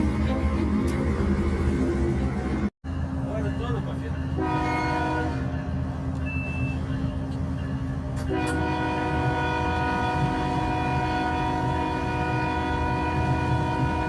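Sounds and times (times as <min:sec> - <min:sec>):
moving train rumble: 0:00.0 - 0:14.0
train horn: 0:04.4 - 0:05.6, 0:08.2 - 0:14.0.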